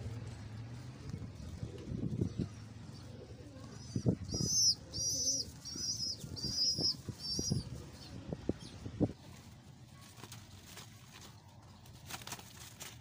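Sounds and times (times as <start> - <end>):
bird chirping: 3.8 - 8.9.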